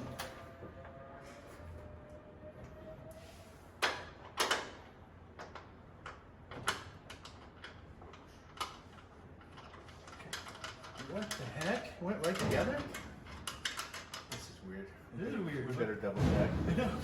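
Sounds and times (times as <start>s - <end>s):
metallic clicks and knocks: 5.4s - 14.5s.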